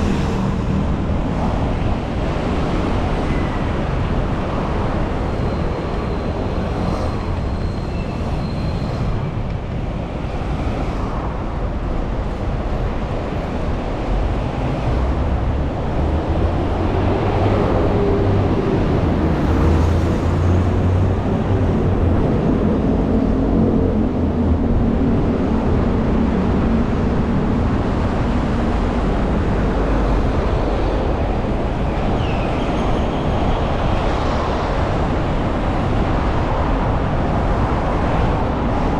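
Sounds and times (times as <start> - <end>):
motor vehicles passing: 0.0 - 4.0
road rumble: 0.0 - 38.9.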